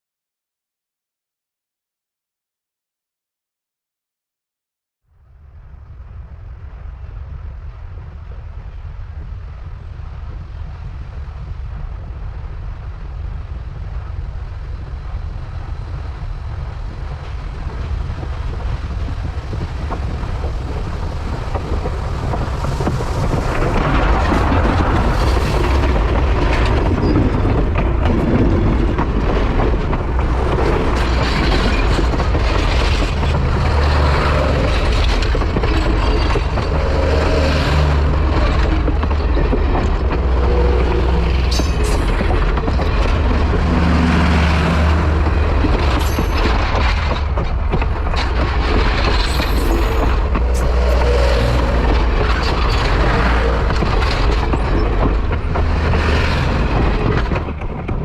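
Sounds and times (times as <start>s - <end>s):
steam locomotive rumble and roar: 5.4s - 58.0s.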